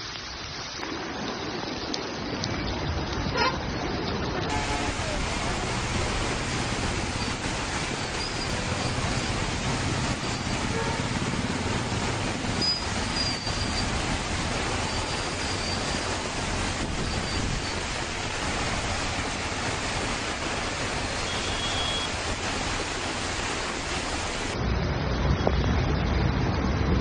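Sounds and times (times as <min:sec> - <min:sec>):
water rushing: 0:00.0 - 0:24.8.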